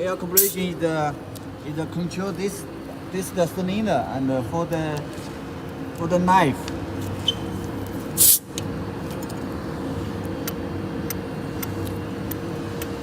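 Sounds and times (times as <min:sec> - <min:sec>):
machine hum: 0:00.0 - 0:13.0
compressed air hiss: 0:00.3 - 0:00.7, 0:08.1 - 0:08.6.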